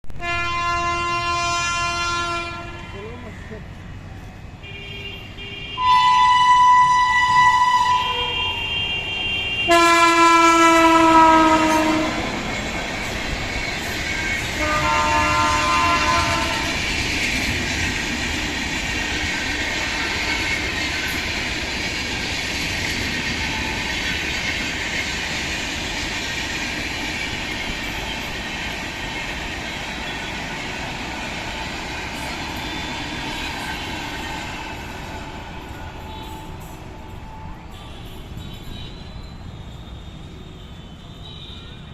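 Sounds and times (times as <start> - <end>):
train horn blasts: 0.1 - 3.2, 4.6 - 12.4, 14.3 - 16.8, 35.2 - 36.7
train clattering on rails: 9.6 - 40.5.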